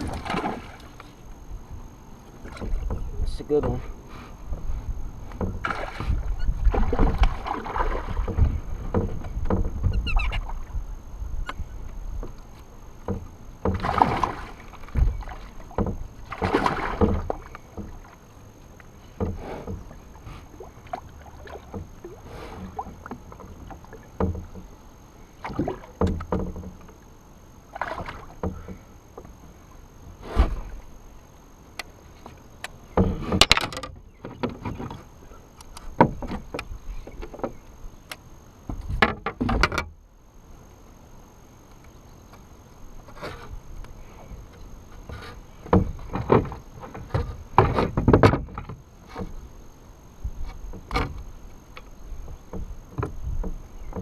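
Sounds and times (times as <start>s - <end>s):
knocks and bumps on kayak: 0.0s - 1.0s, 2.4s - 12.4s, 13.0s - 18.2s, 19.0s - 24.8s, 25.4s - 27.0s, 27.7s - 29.4s, 32.2s - 35.1s, 35.8s - 37.6s, 38.6s - 40.0s, 44.2s - 49.5s, 50.2s - 54.0s
water splashing: 0.0s - 1.3s, 5.4s - 10.8s, 13.0s - 24.6s, 25.4s - 27.0s, 27.7s - 28.7s.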